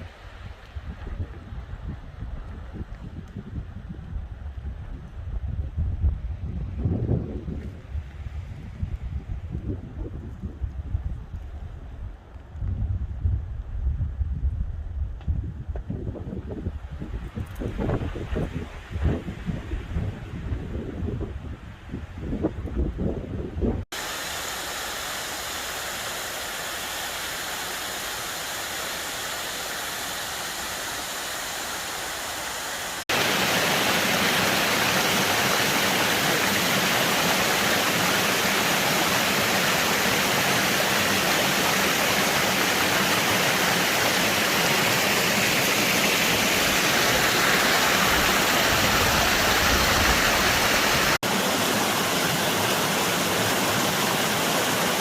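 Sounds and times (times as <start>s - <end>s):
waterfall rushing: 24.0s - 55.0s.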